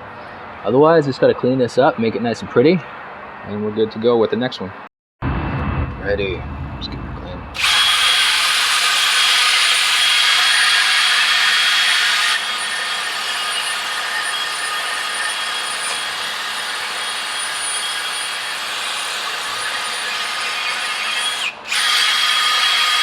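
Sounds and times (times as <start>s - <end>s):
power drill running: 7.6s - 23.0s.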